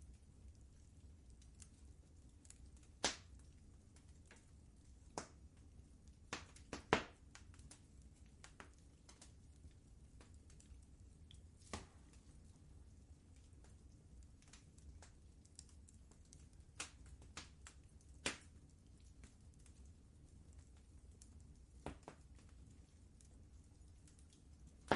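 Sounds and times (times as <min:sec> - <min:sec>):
fire crackling and popping: 0:00.0 - 0:24.9
low steady fire rumble: 0:00.0 - 0:24.9.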